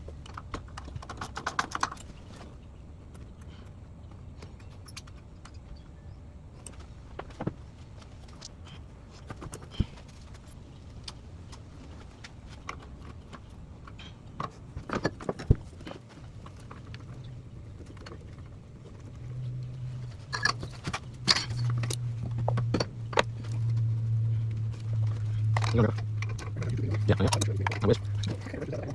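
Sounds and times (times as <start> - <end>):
low steady hum: 0.0 - 28.9
hand tools clinking and knocking: 12.5 - 28.9.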